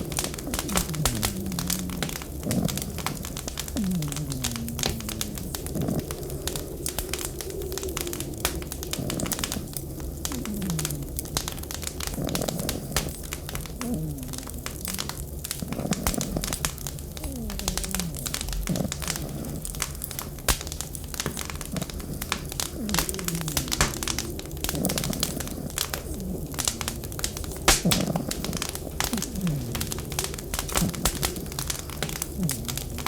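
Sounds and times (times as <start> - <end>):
steady low hum: 0.0 - 33.0
wood fire crackling and popping: 0.0 - 33.0
low falling tones: 0.3 - 6.2.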